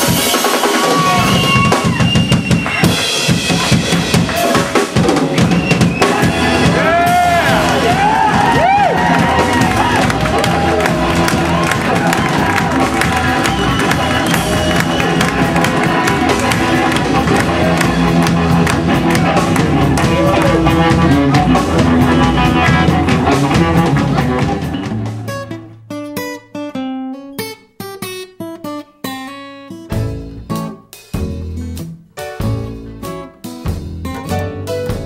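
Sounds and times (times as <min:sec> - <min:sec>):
blues band playing: 0:00.0 - 0:35.0
guitar picked notes: 0:09.0 - 0:35.0.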